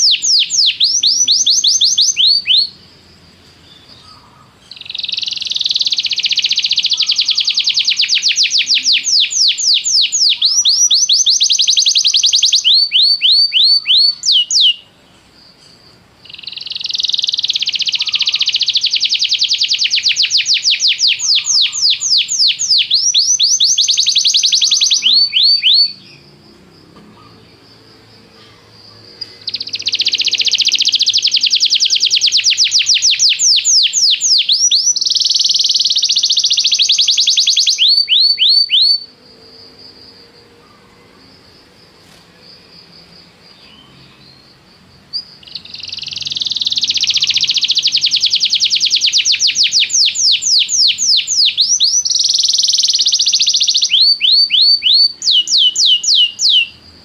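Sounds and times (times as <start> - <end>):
canary singing trills: 0.0 - 41.6, 43.3 - 57.0.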